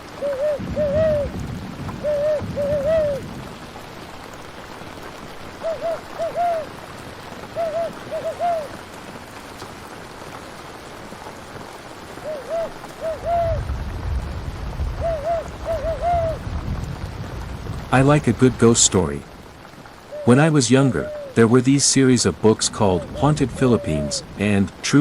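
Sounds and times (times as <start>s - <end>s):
steady rain: 0.0s - 25.0s
low rumble: 13.3s - 18.6s, 22.3s - 24.8s.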